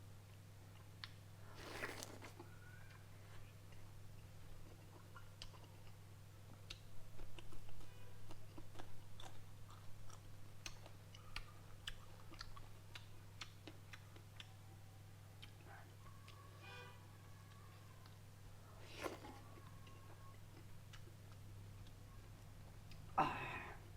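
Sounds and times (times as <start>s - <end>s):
chewing with wet mouth clicks: 3.7s - 14.6s, 18.8s - 22.1s.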